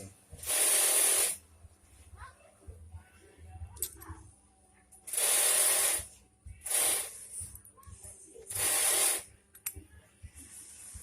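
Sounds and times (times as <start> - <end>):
hissing bursts of spray: 0.4 - 1.4, 5.1 - 7.3, 8.5 - 9.2.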